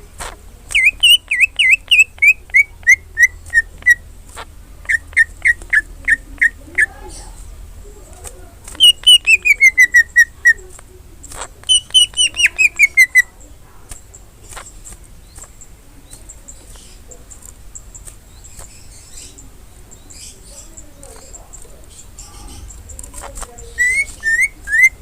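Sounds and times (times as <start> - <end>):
faint bird chips: 0.0 - 25.0
bird singing whistled notes: 0.7 - 4.0, 4.9 - 7.3, 8.7 - 10.6, 11.6 - 13.4, 23.5 - 25.0.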